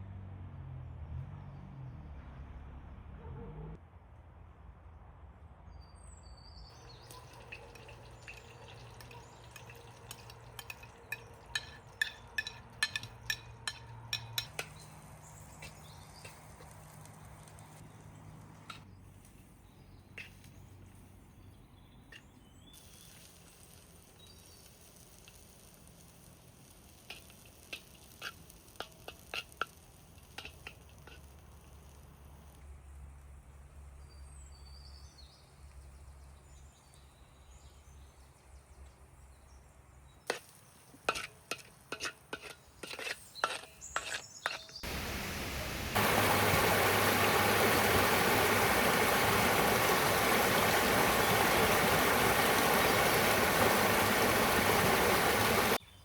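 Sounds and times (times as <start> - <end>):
faint sizzle in skillet: 6.7 - 17.8
utensil knocking against pan: 7.1 - 14.8.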